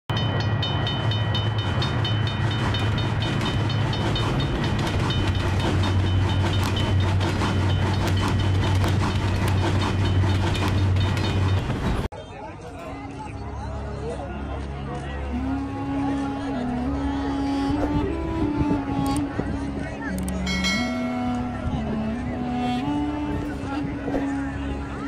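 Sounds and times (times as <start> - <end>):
train rumble: 0.1 - 12.1, 15.3 - 25.0
wheels clicking over rails: 0.4 - 12.1
level crossing bell ringing: 20.4 - 21.6.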